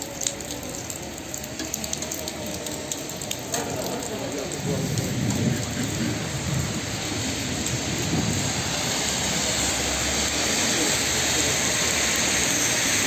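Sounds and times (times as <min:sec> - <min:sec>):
car driving on a wet road: 0:00.0 - 0:13.0
heavy rain on a wet street: 0:00.0 - 0:13.0.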